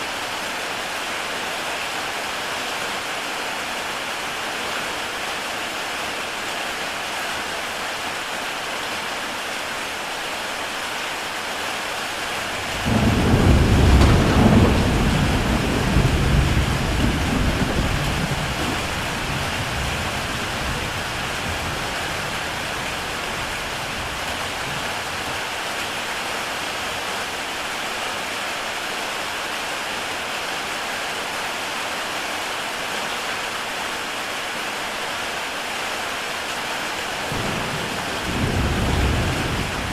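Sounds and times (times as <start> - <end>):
heavy rain on a tile roof: 0.0 - 39.9
rolling thunder: 12.6 - 23.0, 37.2 - 39.9.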